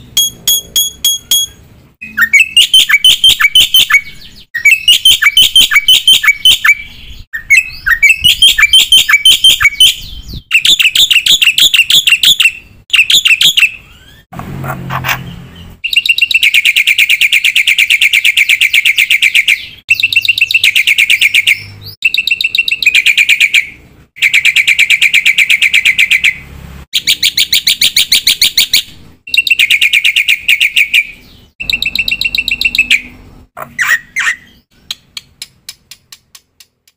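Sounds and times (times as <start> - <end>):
starling singing chattering notes: 0.3 - 12.3, 29.3 - 35.4.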